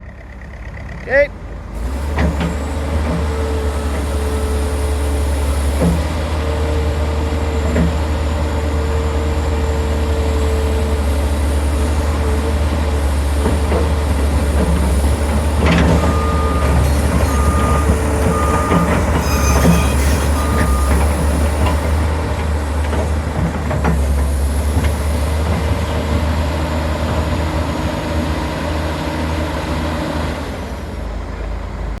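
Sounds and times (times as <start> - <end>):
excavator diesel engine rumble: 0.0 - 32.0
warning alarm beeps: 15.9 - 21.5.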